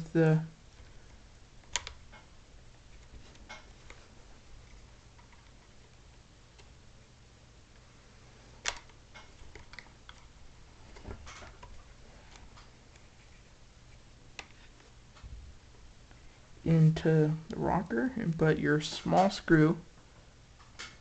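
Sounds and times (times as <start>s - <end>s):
plastic parts clicking together: 1.6s - 2.3s, 8.6s - 10.3s.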